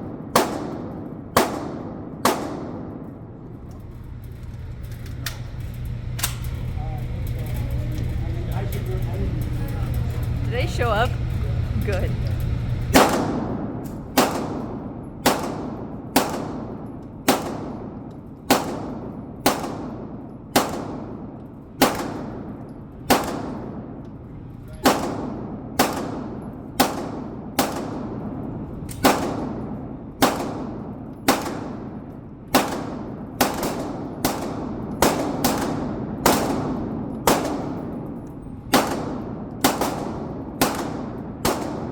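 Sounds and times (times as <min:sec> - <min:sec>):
gunshots with ringing echo: 0:00.0 - 0:03.4, 0:13.0 - 0:24.0, 0:24.8 - 0:28.4, 0:29.0 - 0:41.9.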